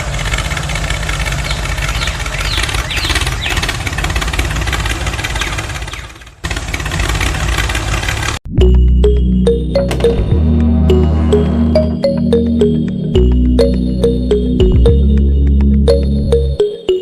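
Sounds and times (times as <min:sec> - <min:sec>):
engine running steadily: 0:00.0 - 0:08.4.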